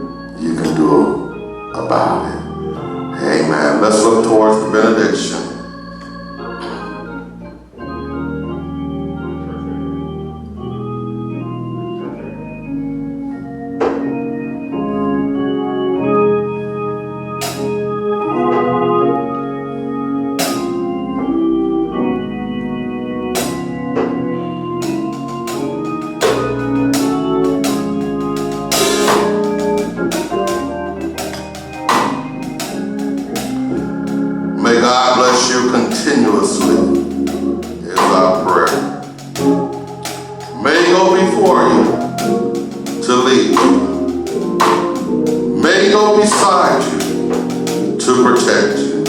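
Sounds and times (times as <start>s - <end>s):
organ playing sustained chords: 0.0s - 49.0s
sharp percussive hits: 17.4s - 17.8s, 20.4s - 20.8s, 24.8s - 34.2s, 35.2s - 45.5s.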